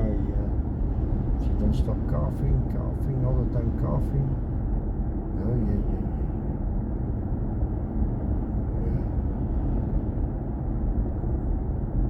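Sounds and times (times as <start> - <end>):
road and tyre rumble: 0.0 - 12.0.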